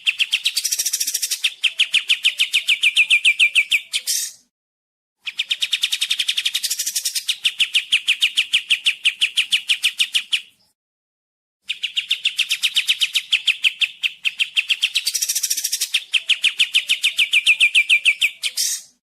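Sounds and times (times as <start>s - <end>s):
songbird rapid chirping: 0.0s - 4.5s, 5.2s - 10.8s, 11.6s - 19.0s.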